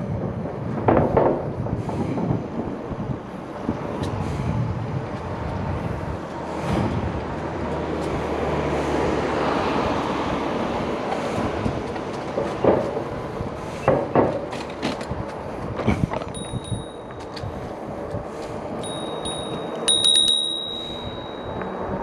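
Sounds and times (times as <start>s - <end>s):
highway traffic rushing: 0.0s - 22.0s.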